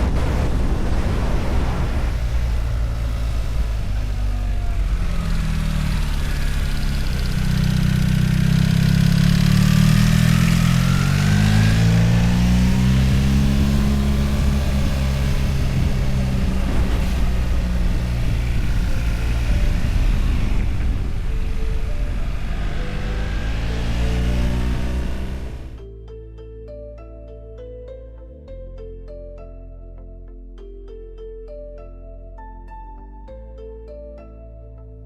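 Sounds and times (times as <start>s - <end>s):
motorcycle engine running: 0.0s - 25.8s
wind rushing: 0.0s - 25.8s.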